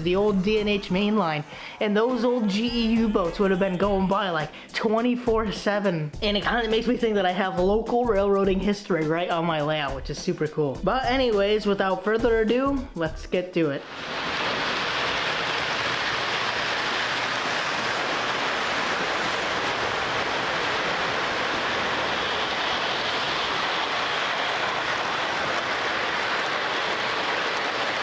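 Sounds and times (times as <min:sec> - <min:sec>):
model train motor and wheels on rail: 0:13.9 - 0:28.0.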